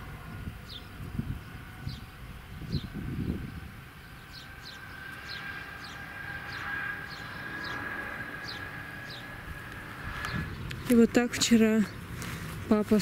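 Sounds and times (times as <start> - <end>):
wind gust on microphone: 0.0 - 12.8
faint steady whine: 0.0 - 13.0
bird downward-sliding chirps: 4.0 - 10.8.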